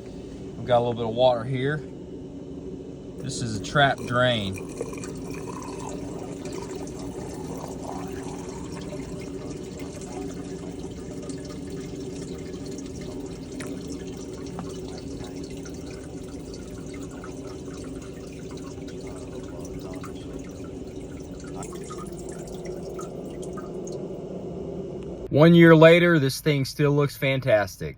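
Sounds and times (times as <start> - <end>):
low hum: 0.0 - 27.2
water trickling into drain: 3.2 - 25.3.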